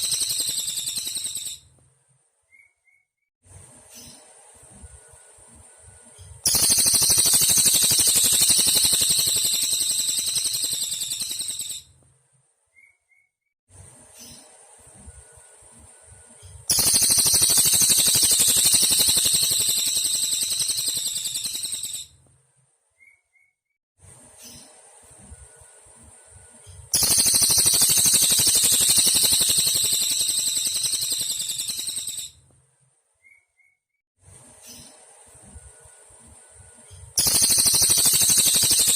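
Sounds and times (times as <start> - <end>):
bird buzzing trill: 6.5 - 11.7, 16.7 - 22.0, 27.0 - 32.3, 37.2 - 38.9.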